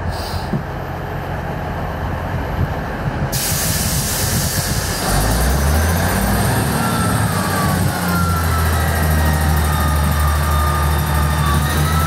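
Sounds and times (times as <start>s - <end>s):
diesel engine rumble: 0.0s - 12.0s
hiss of air: 0.1s - 0.5s, 3.3s - 5.1s.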